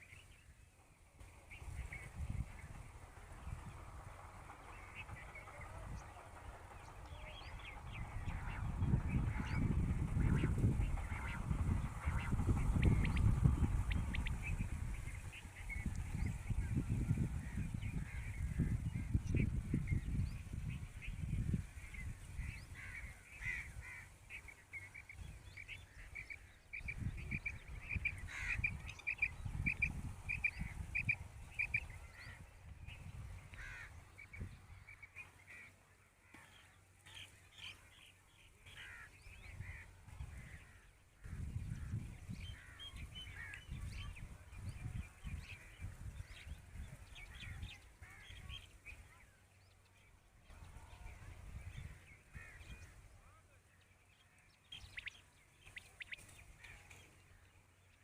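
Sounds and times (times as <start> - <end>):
birds calling: 0.0 - 58.0
low rumble: 0.8 - 23.8.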